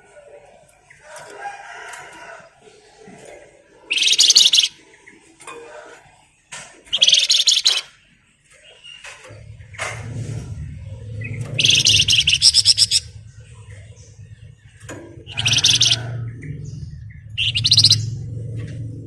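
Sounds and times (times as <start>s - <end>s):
songbird twittering: 3.8s - 5.1s, 6.9s - 8.0s, 10.8s - 18.9s
bird rattling trills: 3.9s - 4.8s, 6.9s - 8.0s, 11.1s - 13.8s, 14.8s - 18.6s.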